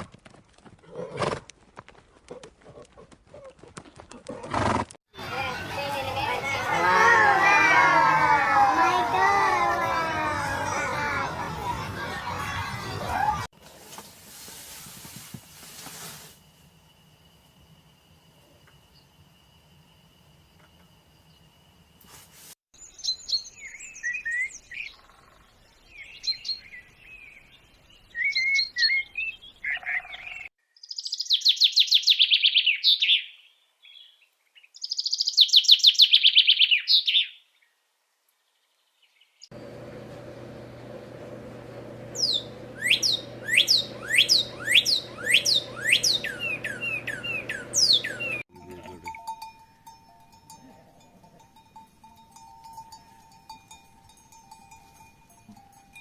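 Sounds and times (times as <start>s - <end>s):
small birds chirping: 22.8s - 37.8s, 38.4s - 48.4s
steady hum: 39.5s - 48.4s
loud rapid bird trills: 42.1s - 48.4s.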